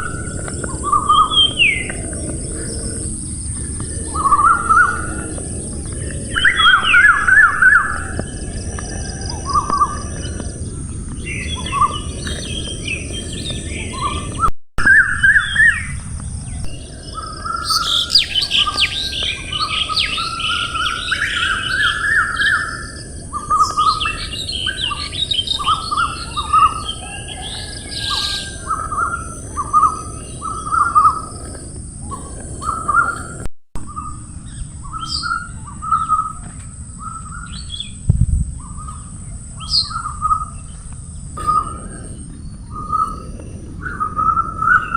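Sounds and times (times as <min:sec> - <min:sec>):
birds chirping: 0:00.0 - 0:44.9
high-pitched hiss: 0:15.2 - 0:33.5.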